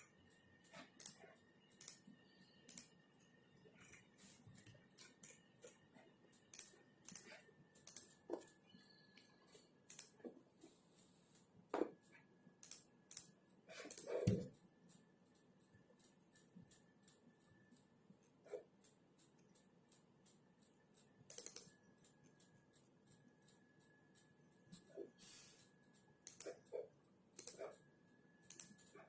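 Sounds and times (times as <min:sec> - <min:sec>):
faint high whine: 0:00.0 - 0:12.5
keyboard typing: 0:00.0 - 0:29.0.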